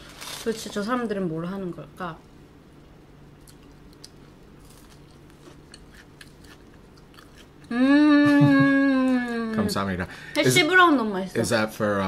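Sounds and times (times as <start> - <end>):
crunching and chewing: 0.0 - 0.7, 3.4 - 7.7
person humming mmm: 7.6 - 9.6.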